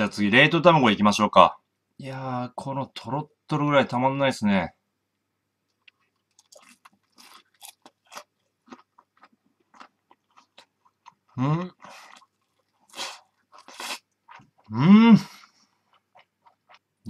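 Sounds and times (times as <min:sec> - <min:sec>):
chewing crunchy fried food: 0:05.7 - 0:17.0
person humming briefly: 0:14.7 - 0:15.4.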